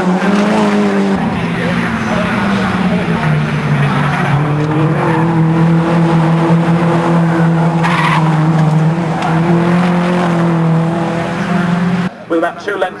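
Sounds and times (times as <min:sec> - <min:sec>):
race car engine at high revs: 0:00.0 - 0:12.1.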